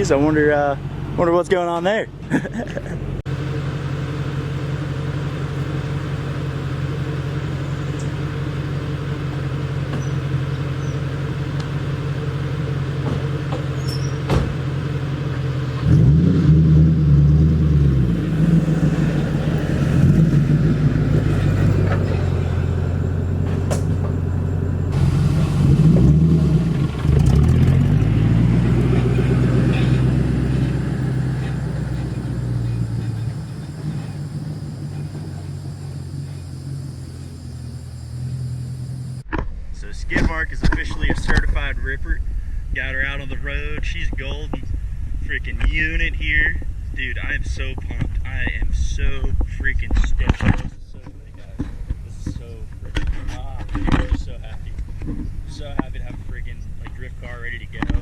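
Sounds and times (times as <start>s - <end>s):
loud car engine accelerating: 2.5s - 39.2s.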